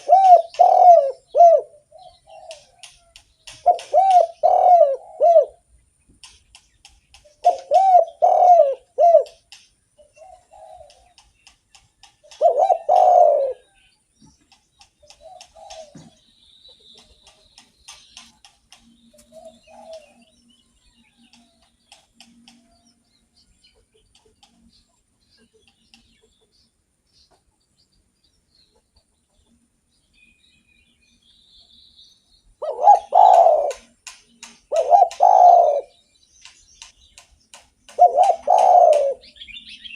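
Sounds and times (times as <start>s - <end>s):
dove cooing: 0.0s - 5.7s, 7.2s - 13.8s, 15.0s - 16.3s, 18.8s - 20.3s, 32.6s - 36.0s, 37.9s - 39.4s.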